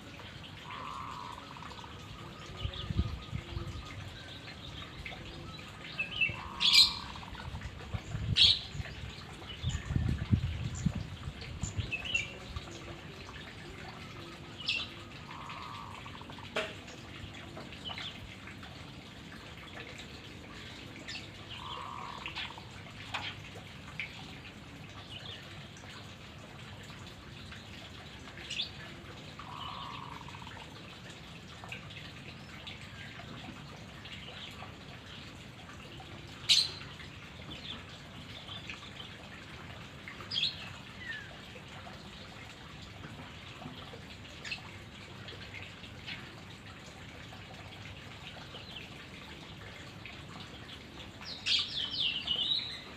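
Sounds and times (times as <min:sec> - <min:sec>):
bird chirps and calls: 0:02.0 - 0:07.4.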